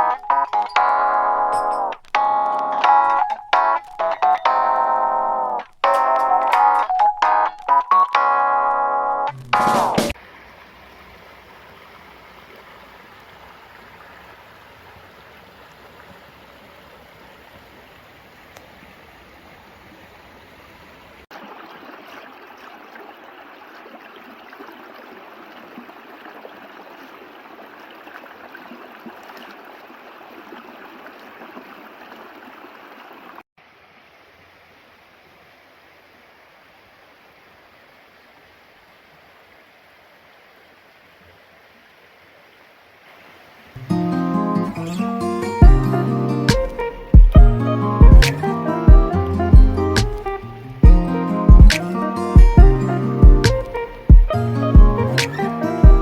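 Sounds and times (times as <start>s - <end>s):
mountain stream flowing: 9.3s - 56.0s.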